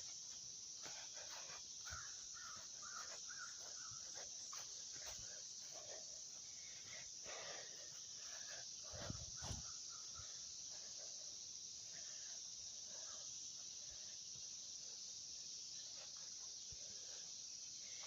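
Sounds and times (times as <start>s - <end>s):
insect drone: 0.0s - 18.0s
bird calling: 1.8s - 4.6s.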